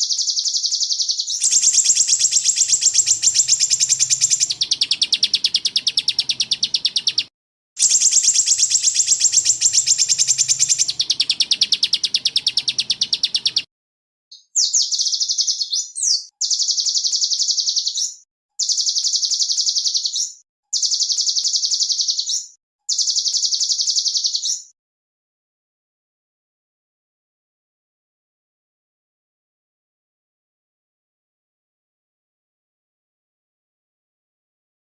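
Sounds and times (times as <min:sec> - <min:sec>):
songbird trills: 0:00.0 - 0:13.7, 0:14.3 - 0:24.7.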